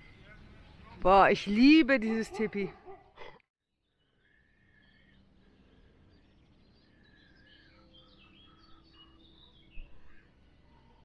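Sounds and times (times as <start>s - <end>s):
outdoor background noise: 0.0s - 11.0s
faint bird chirps: 3.8s - 11.0s.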